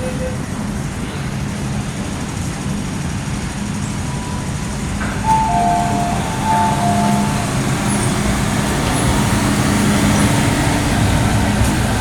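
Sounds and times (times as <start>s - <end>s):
train running hum: 0.0s - 12.0s
two-tone electronic chime: 5.2s - 8.1s.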